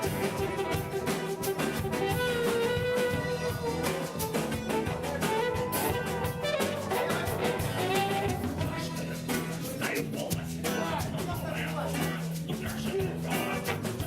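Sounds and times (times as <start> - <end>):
sliding lead melody: 0.0 - 9.8
bass line: 0.0 - 14.0
drum kit: 0.0 - 14.0
guitar: 0.0 - 14.0.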